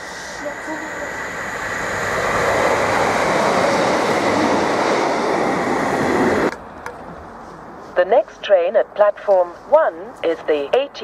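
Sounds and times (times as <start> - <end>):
train passing at speed: 0.0 - 10.9.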